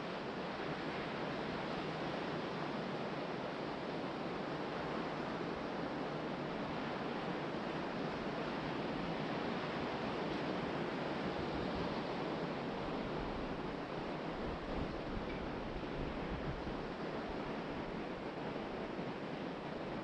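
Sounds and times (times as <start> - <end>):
wind blowing across microphone: 0.0 - 20.0.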